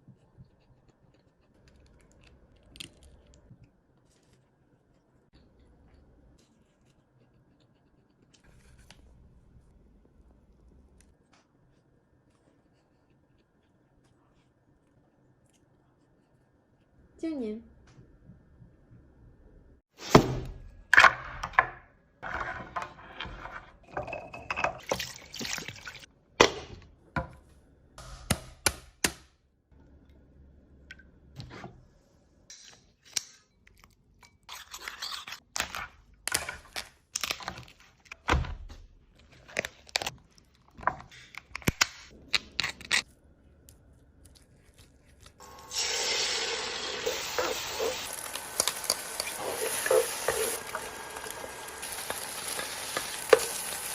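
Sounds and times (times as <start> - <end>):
kitchen knocks and scrapes: 20.0 - 25.1
food sizzling in a pan: 45.4 - 53.9.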